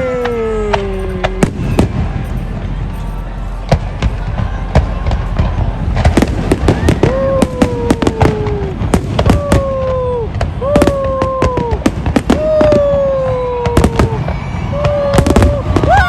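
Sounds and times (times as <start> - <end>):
long held tones dipping in pitch: 0.0 - 3.7
fireworks bangs and crackles: 0.0 - 16.0.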